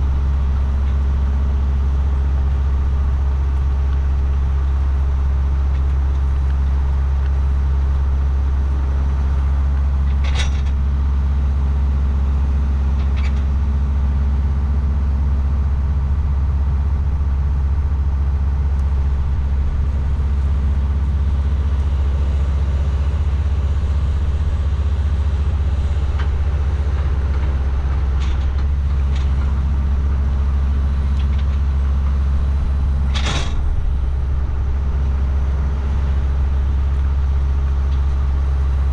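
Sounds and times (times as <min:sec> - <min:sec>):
tractor engine droning: 0:00.0 - 0:38.9
metal knocks and clanks: 0:33.0 - 0:34.0.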